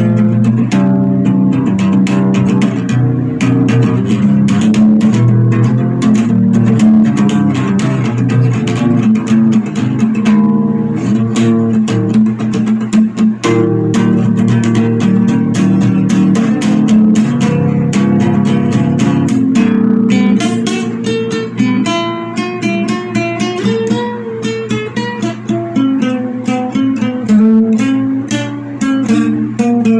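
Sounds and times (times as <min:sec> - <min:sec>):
sustained bass line: 0:00.0 - 0:21.8
plucked guitar notes: 0:00.0 - 0:29.9.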